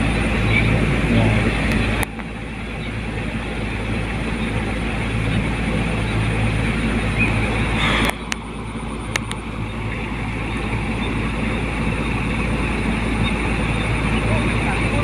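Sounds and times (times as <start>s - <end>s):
combine harvester running: 0.0s - 15.0s
sharp clicks: 7.8s - 9.5s.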